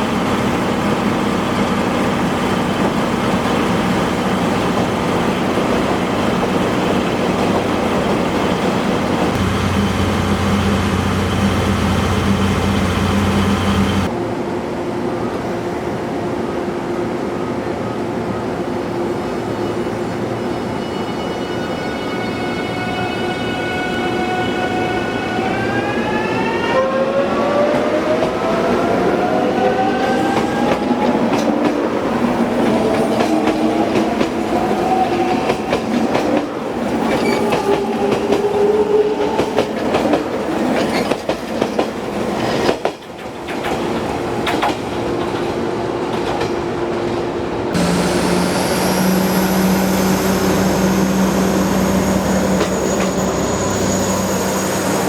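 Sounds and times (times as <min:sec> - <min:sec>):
train wheels clicking over rail joints: 0:39.3 - 0:46.6.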